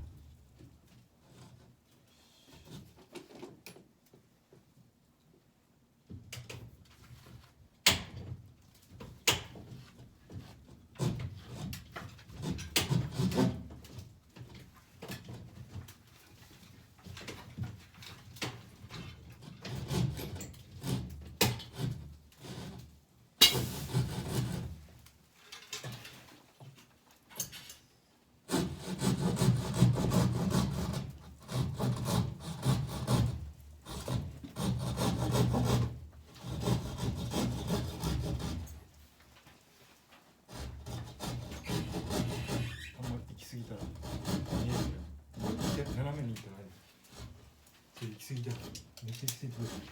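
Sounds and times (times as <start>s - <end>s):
hand saw rasping strokes: 12.3s - 13.7s, 19.4s - 24.8s, 28.5s - 38.8s, 40.5s - 47.5s, 48.4s - 49.9s.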